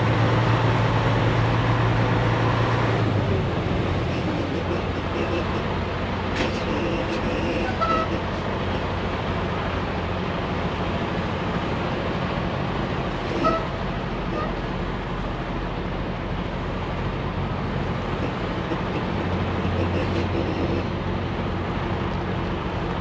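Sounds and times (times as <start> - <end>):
truck engine drone: 0.0 - 23.0
tyre and road noise: 0.0 - 23.0
faint short squeaks: 6.4 - 8.4, 18.7 - 20.9.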